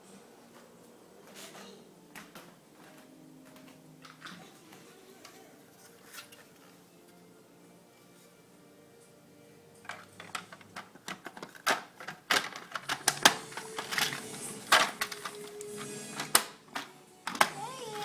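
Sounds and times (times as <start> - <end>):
plastic toy track clicking: 9.9 - 15.6.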